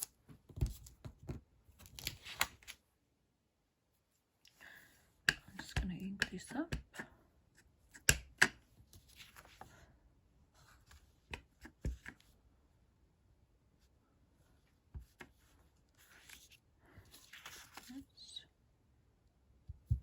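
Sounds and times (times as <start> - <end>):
paper rustling: 16.0 - 18.0.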